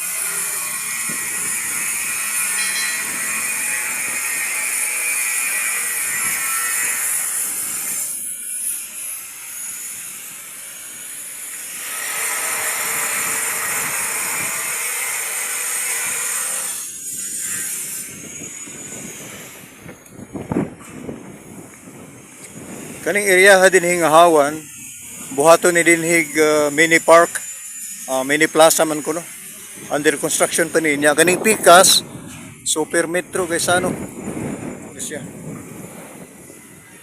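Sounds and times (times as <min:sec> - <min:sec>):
construction machinery din: 0:00.0 - 0:37.0
high-pitched ringing tones: 0:02.4 - 0:04.2, 0:24.0 - 0:31.2.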